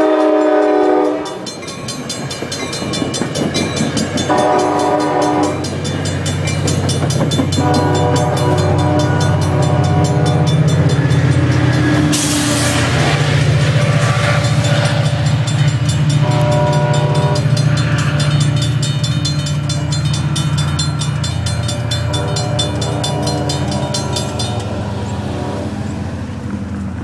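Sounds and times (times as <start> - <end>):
train horn: 0.0 - 1.4, 4.2 - 5.8, 7.5 - 10.9, 16.0 - 18.2, 21.9 - 26.3
crossing bells ringing: 0.0 - 26.5
diesel locomotive rumbling past: 0.0 - 27.0.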